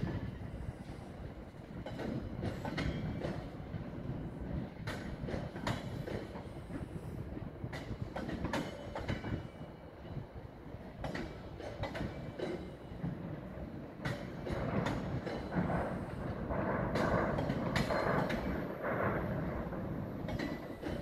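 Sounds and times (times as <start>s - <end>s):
train wagons rumbling: 0.0s - 21.0s
wheels clicking over rail joints: 11.0s - 13.2s.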